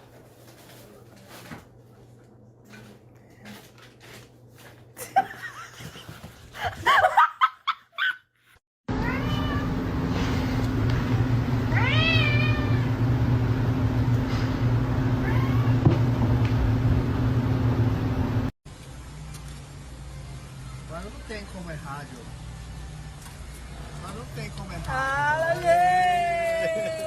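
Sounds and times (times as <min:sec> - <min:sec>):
cat meowing: 0:09.0 - 0:09.7, 0:11.7 - 0:13.0, 0:15.2 - 0:15.8
steady low hum: 0:09.6 - 0:20.8.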